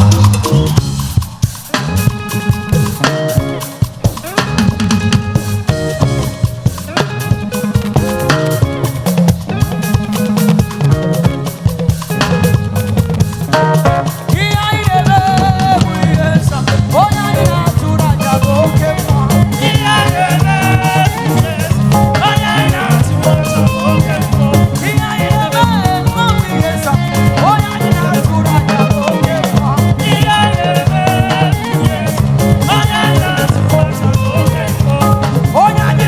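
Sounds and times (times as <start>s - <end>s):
band playing upbeat groove: 0.0s - 36.0s
person singing: 1.6s - 5.0s, 13.5s - 36.0s.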